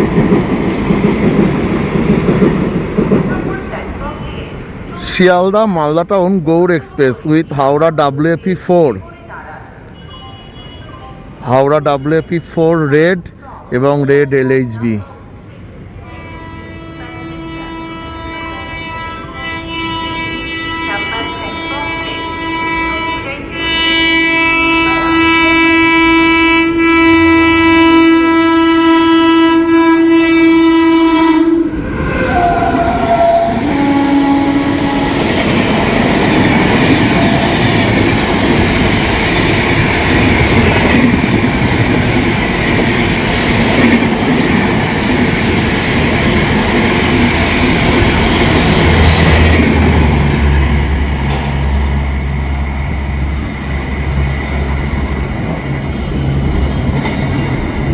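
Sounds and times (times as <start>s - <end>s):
train coaches clattering over rails: 0.0s - 8.7s, 32.1s - 57.9s
train horn blast: 16.0s - 38.3s, 46.8s - 52.6s.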